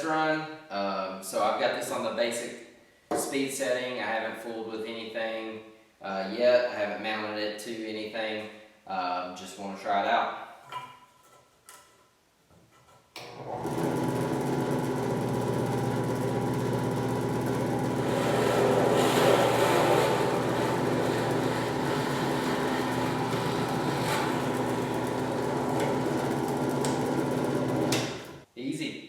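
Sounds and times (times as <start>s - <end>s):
drill press motor humming: 13.2s - 28.4s.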